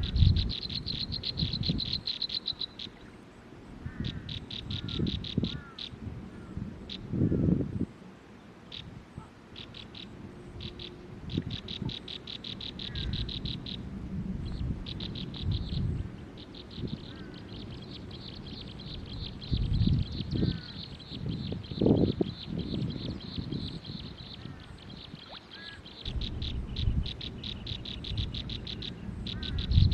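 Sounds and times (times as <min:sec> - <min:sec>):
bird trilling: 0:00.0 - 0:03.1, 0:03.9 - 0:07.0, 0:09.6 - 0:13.8, 0:14.9 - 0:29.9
faint downward-slurred bird calls: 0:08.7 - 0:13.8, 0:14.5 - 0:29.9
low rumbling noise: 0:10.1 - 0:24.6, 0:26.0 - 0:29.9.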